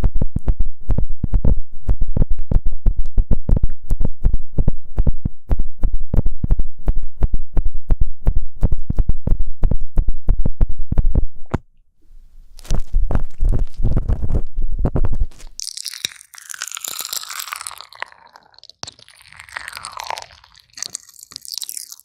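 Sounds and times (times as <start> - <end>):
ear pick scraping microphone: 12.2 - 15.6
rough scratching: 12.5 - 22.0.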